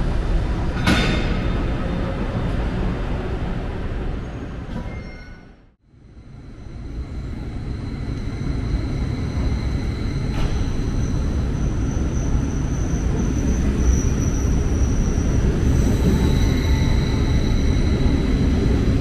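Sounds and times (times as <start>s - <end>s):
train wheels rumbling on rails: 6.2s - 19.0s.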